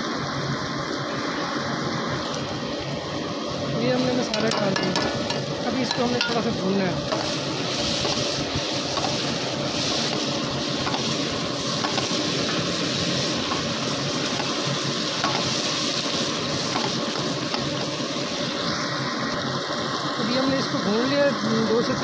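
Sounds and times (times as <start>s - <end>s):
chicken sizzling in hot oil: 0.0s - 22.0s
spatula stirring: 5.2s - 18.6s.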